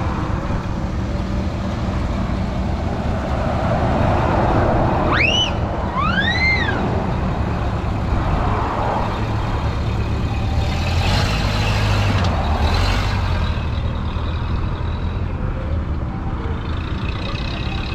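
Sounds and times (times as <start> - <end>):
car engines rumbling: 0.0 - 17.9
short rising and falling chirps: 5.1 - 6.8.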